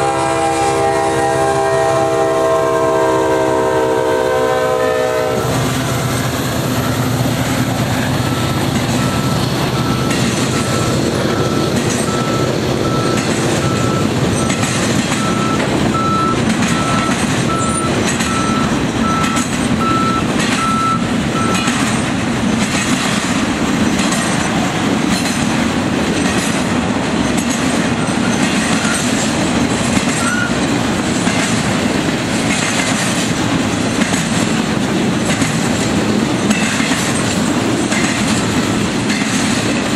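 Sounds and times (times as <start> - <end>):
freight train rumbling: 0.0 - 39.9
wheels clicking over rail joints: 6.2 - 39.9
high electronic beep: 8.3 - 21.7.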